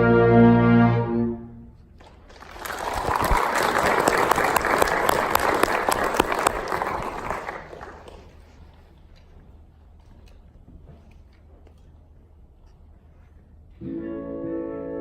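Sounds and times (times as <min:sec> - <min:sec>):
orchestral music: 0:00.0 - 0:01.8
audience applauding: 0:02.0 - 0:08.6.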